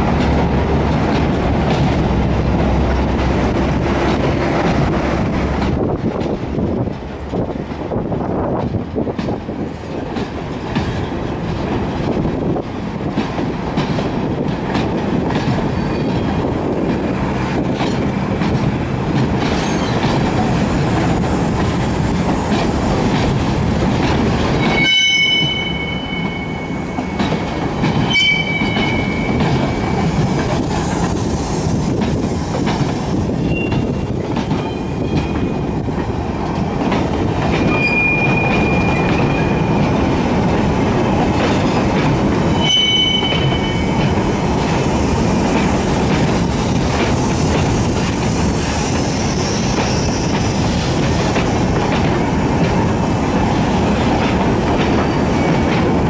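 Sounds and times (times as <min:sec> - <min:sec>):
clickety-clack over rail joints: 0:00.0 - 0:56.0
freight train rumbling past: 0:00.0 - 0:56.0
high-pitched wheel squeals: 0:24.6 - 0:26.7, 0:28.0 - 0:29.3, 0:37.7 - 0:39.6, 0:42.5 - 0:44.0.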